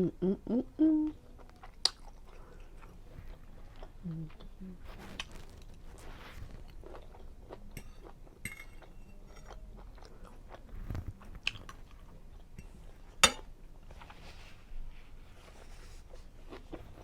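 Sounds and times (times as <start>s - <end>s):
person chewing food: 1.3s - 13.2s, 15.5s - 17.0s.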